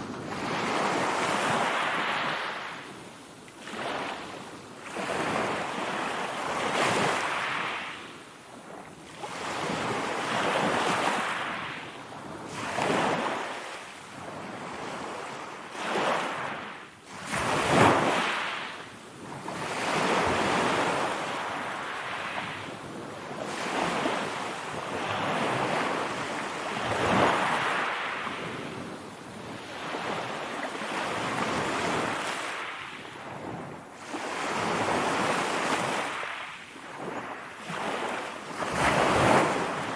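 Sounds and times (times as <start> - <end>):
ocean waves breaking: 0.0 - 3.0, 3.6 - 8.0, 8.6 - 39.9.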